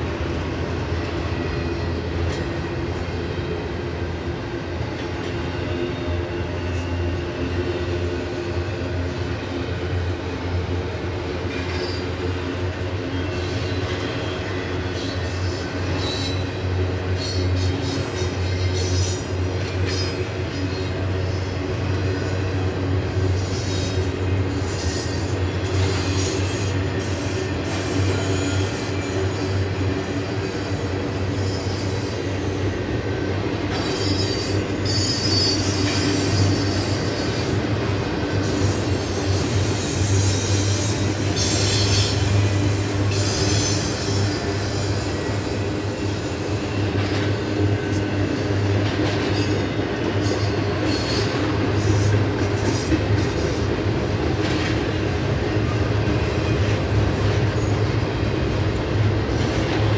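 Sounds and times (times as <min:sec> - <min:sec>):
freight train wheels rumbling: 0:00.0 - 0:59.9
high-pitched wheel squeal: 0:33.7 - 0:37.7, 0:38.6 - 0:45.6.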